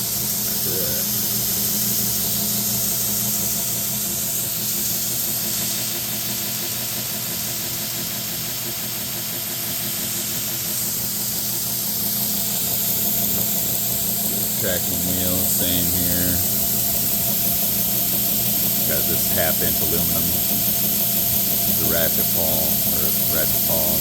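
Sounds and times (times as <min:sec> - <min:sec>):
belt hissing: 0:00.0 - 0:08.6, 0:09.2 - 0:24.0
belt grinder motor hum: 0:10.8 - 0:24.0.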